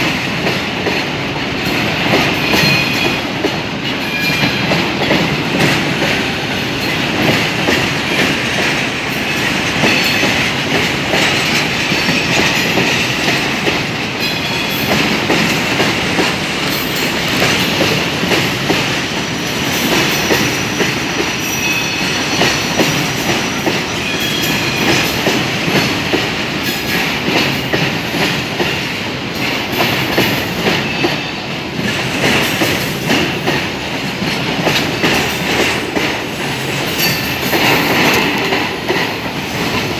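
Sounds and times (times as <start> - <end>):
train wheels clicking over rail joints: 0.0 - 39.9.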